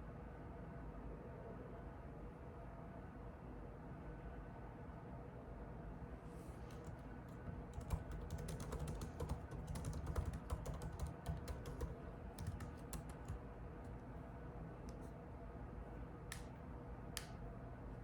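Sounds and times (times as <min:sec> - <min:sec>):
computer keyboard typing: 0:06.7 - 0:13.4.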